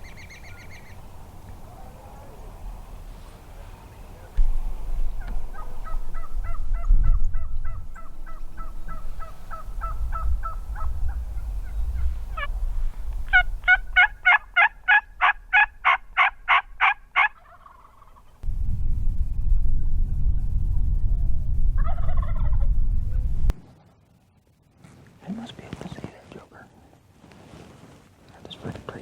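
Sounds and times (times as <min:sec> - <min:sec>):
turkey yelps: 0:13.3 - 0:18.3
low rumble: 0:18.4 - 0:23.8.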